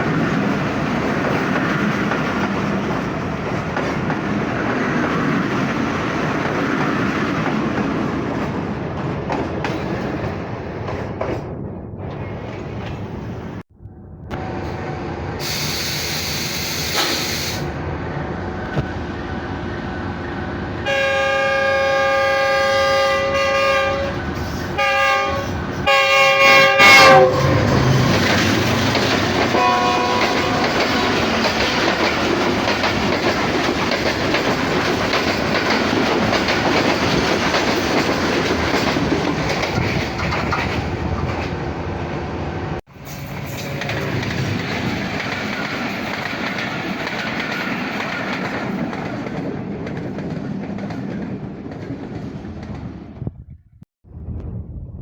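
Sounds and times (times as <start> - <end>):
wheels clacking over rail joints: 0.0 - 11.5, 27.1 - 41.8, 43.0 - 53.0
train coaches rumbling: 0.0 - 53.4
train horn blasts: 18.6 - 28.2, 29.5 - 31.4.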